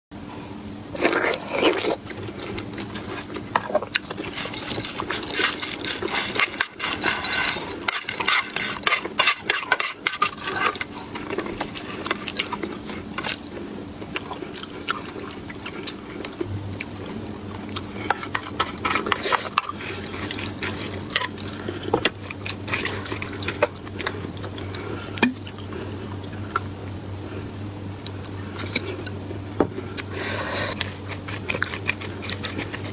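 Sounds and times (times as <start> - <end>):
crunchy chewing: 0.9 - 32.9
utensils scraping dishes: 1.0 - 13.4, 18.0 - 24.2, 30.1 - 32.9.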